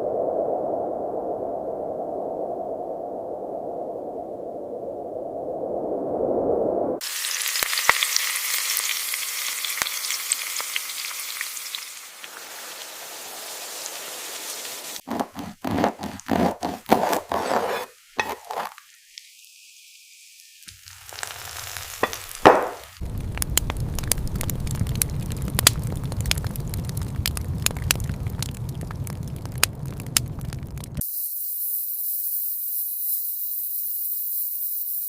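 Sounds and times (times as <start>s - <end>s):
food sizzling in a pan: 7.0s - 15.5s, 17.8s - 23.6s
scraping or stirring: 15.0s - 18.8s, 21.2s - 22.9s.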